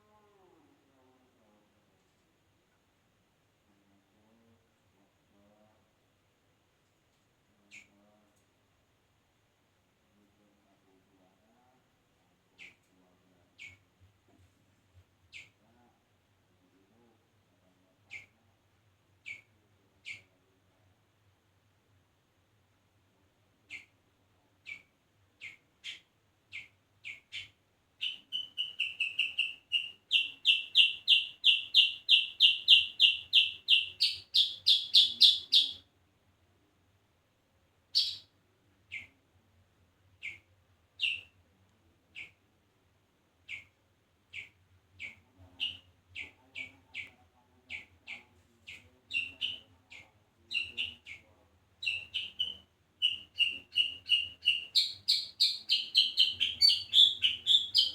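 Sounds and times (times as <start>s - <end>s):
songbird calling: 19.2s - 20.3s, 24.6s - 35.8s, 37.9s - 38.3s, 41.0s - 41.3s, 44.3s - 57.9s.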